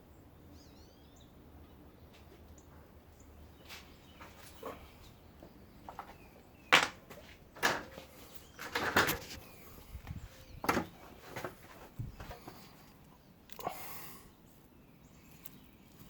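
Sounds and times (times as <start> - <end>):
tools knocking and clattering: 5.9 - 9.4, 10.6 - 12.6.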